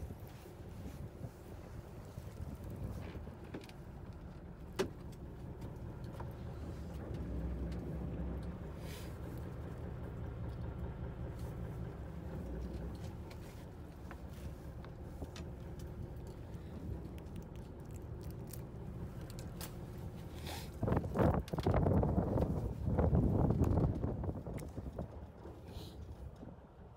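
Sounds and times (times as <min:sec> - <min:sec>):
boat engine rumbling: 0:00.0 - 0:26.9.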